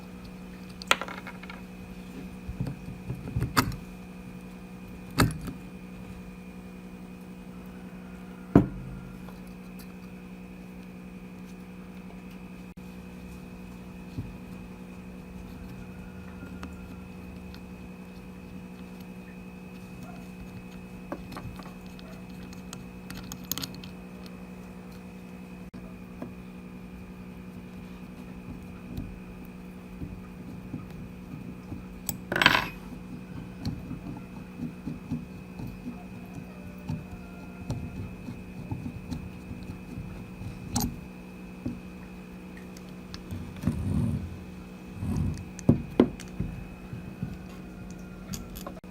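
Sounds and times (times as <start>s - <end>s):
electrical hum: 0.0s - 48.9s
small metal parts clinking: 32.1s - 32.8s, 48.3s - 48.8s.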